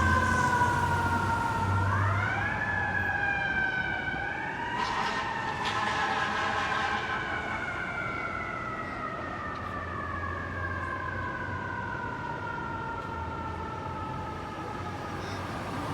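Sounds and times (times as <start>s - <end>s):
mechanical siren wailing: 0.0s - 15.6s
truck engine rumbling: 4.6s - 9.0s.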